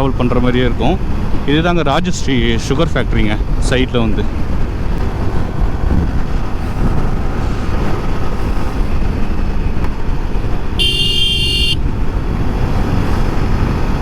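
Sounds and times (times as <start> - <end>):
road rumble: 0.0 - 14.0
wind buffeting microphone: 2.3 - 10.8
motorcycle engine: 4.4 - 14.0
horn: 10.8 - 11.8.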